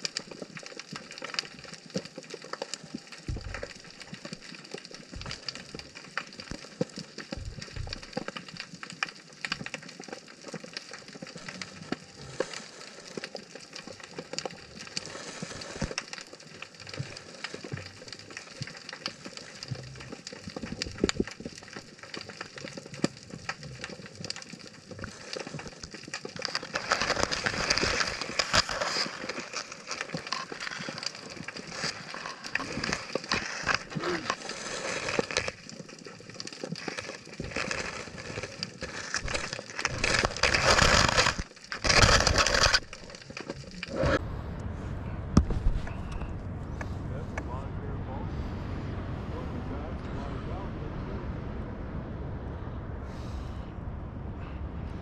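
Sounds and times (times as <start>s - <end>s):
snapping shrimp clicking underwater: 0.0s - 44.0s.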